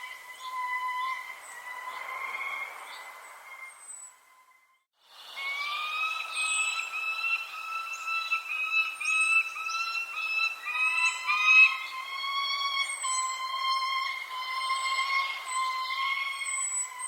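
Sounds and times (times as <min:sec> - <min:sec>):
bird whistling rising notes: 0:00.0 - 0:17.0
lower whistled bird call: 0:00.0 - 0:17.0
high falling bird chirp: 0:05.3 - 0:17.0.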